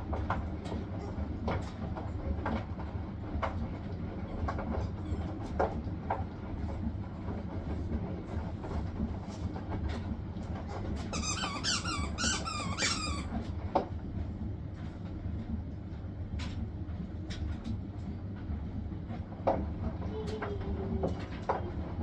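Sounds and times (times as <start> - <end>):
washing machine spinning: 0.0 - 22.0
high wavering squeaks: 11.1 - 13.3.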